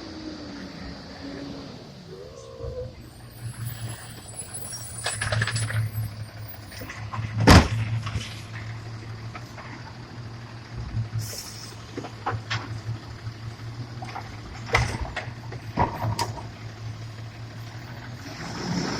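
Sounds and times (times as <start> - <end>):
garbage truck engine humming: 0.0 - 18.9
short hiss: 11.2 - 11.8.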